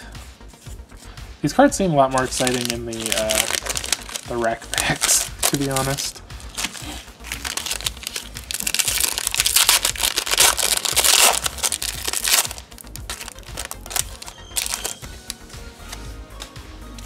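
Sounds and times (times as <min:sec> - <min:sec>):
foil wrapper tearing and crinkling: 0:02.1 - 0:15.0.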